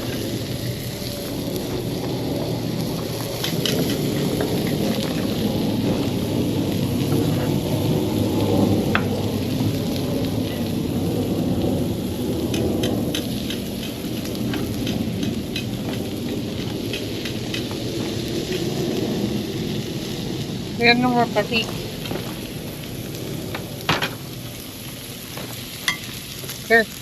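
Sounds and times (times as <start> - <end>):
crackles and pops: 0.0 - 27.0
food sizzling on a grill: 0.0 - 27.0
steady low rumble: 0.0 - 27.0.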